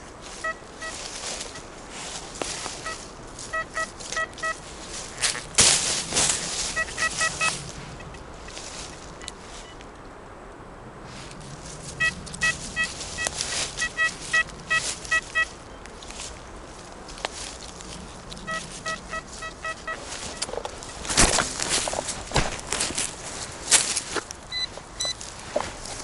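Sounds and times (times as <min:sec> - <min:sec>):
metal detector beeping: 0:00.0 - 0:01.7, 0:02.4 - 0:05.5, 0:06.4 - 0:09.8, 0:12.0 - 0:15.8, 0:18.4 - 0:21.9, 0:24.5 - 0:25.3
footsteps crunching in forest litter: 0:00.0 - 0:09.9, 0:11.0 - 0:26.0.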